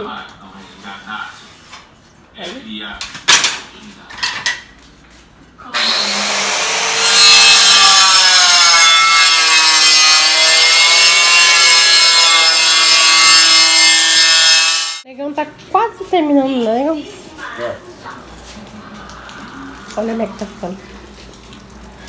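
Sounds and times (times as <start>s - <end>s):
power cutter cutting tile: 5.7s - 15.0s.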